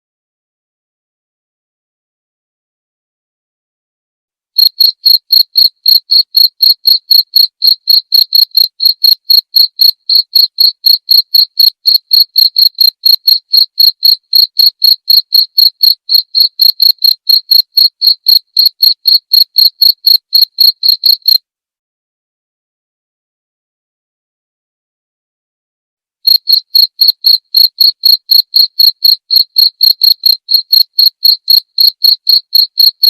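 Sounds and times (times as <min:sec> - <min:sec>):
cricket chirping: 0:04.6 - 0:21.4, 0:26.3 - 0:33.0.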